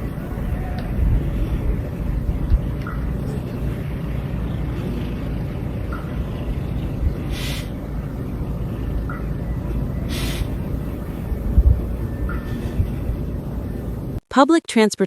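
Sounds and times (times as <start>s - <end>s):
heavy vehicle rumbling: 0.0s - 14.2s
short sharp hiss: 10.1s - 10.5s.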